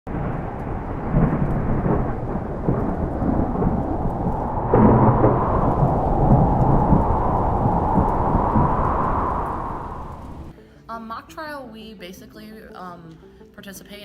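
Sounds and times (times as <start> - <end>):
steady rain: 0.1 - 10.5
thunder rumbling: 0.1 - 10.5.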